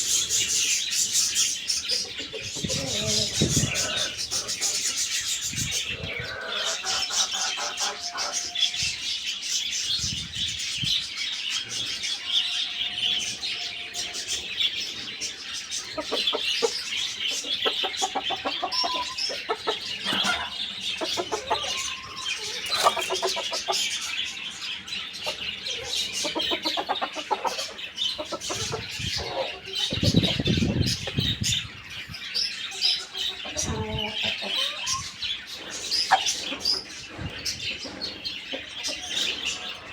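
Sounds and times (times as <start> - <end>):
chickens clucking: 0.0 - 39.9
small birds chirping: 0.0 - 39.9.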